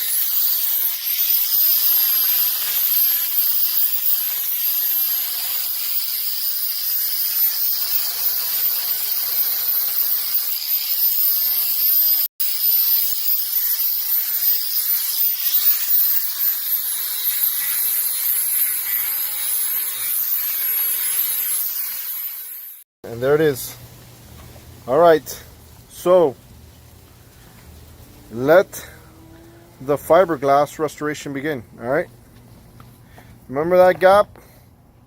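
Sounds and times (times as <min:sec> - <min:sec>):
power tool high whine: 0:00.0 - 0:22.8.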